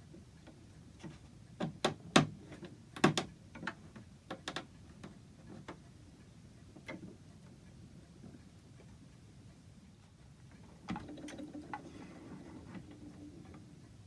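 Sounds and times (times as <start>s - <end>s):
wooden taps and knocks: 3.0s - 4.7s.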